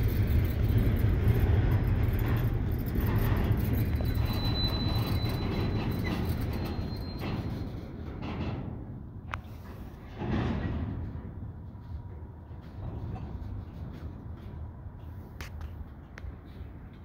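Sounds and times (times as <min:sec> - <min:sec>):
faint high wheel squeal: 0:00.0 - 0:08.1
steel wheels rumbling on rail: 0:00.0 - 0:17.0.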